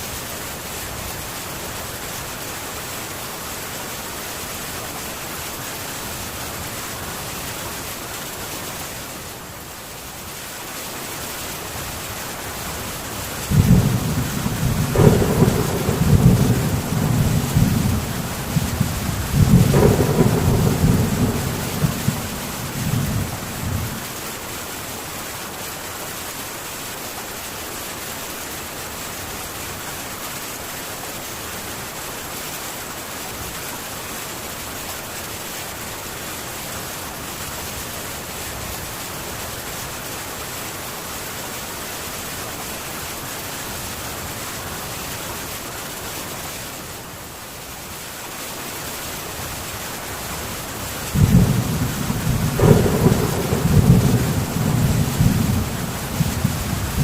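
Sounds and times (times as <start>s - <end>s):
heavy rain on a tin roof: 0.0s - 57.0s
thunder rumble: 13.5s - 24.1s, 51.1s - 57.0s.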